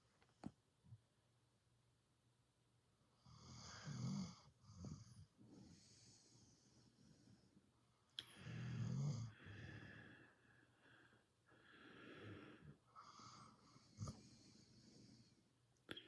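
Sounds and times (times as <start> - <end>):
dog snoring: 3.2 - 6.1, 8.4 - 9.4.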